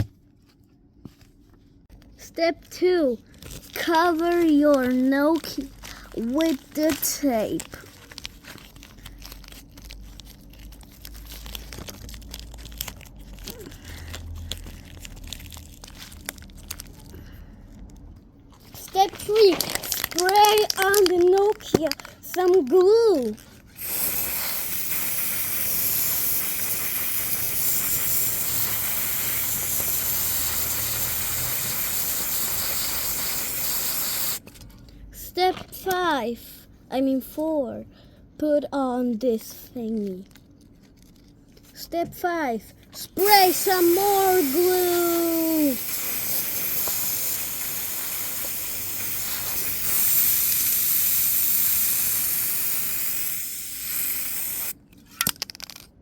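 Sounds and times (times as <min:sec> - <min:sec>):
spray can hissing: 0:19.4 - 0:21.8, 0:23.2 - 0:34.4, 0:43.2 - 0:54.8.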